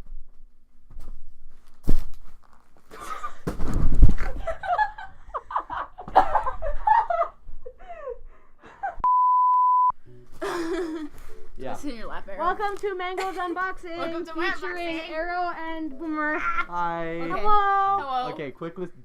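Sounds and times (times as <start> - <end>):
censor bleep: 9.0 - 10.0.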